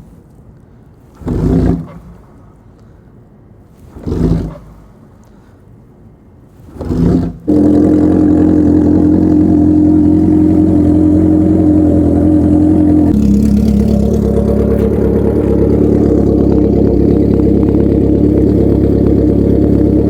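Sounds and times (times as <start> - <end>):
motorcycle engine starting and running: 6.8 - 20.0.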